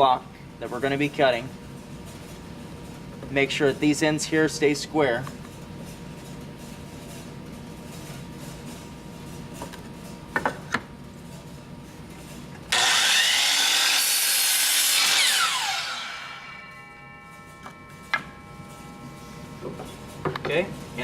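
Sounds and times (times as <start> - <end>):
miter saw cutting wood: 12.7 - 19.5.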